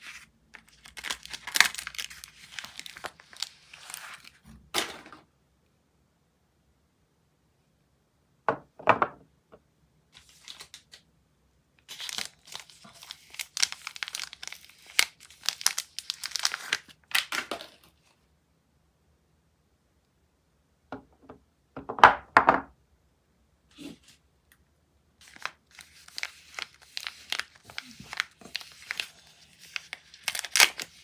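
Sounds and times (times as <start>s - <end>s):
wrapper crinkling and tearing: 0.0s - 5.2s, 11.8s - 18.0s, 25.2s - 31.0s.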